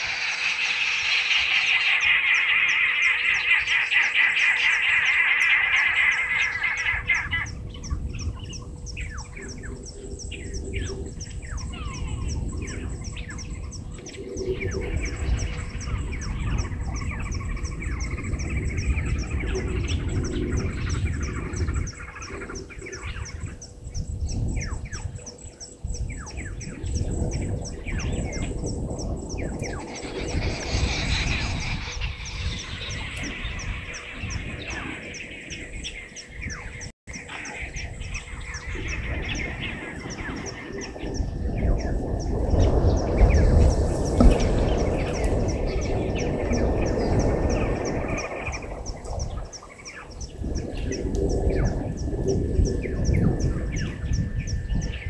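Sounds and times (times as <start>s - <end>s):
birds chirping: 0.0s - 55.0s
low rumble: 25.9s - 49.6s.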